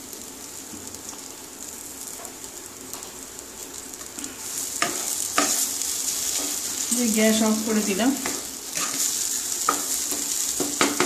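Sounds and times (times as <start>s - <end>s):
food sizzling in a pan: 0.0s - 11.0s
wooden spatula knocking on pan: 9.7s - 11.0s.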